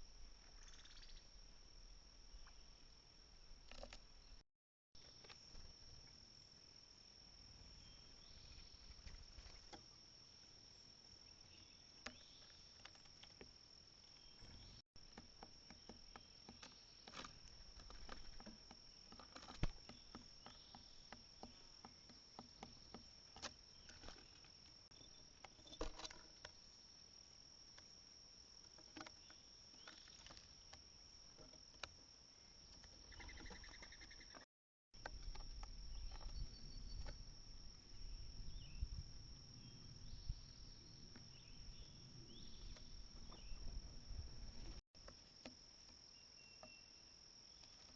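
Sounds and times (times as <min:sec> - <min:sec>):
high insect drone: 0:35.0 - 0:47.9.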